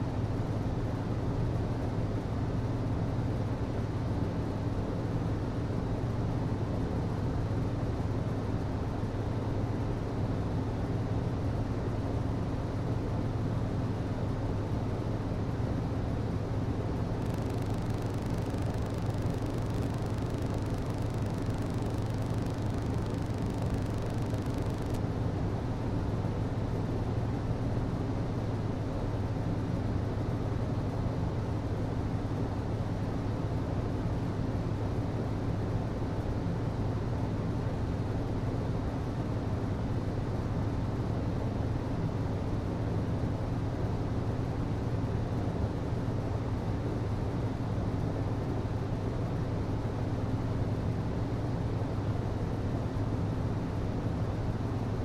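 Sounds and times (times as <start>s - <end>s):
hvac system humming: 15.0s - 25.0s.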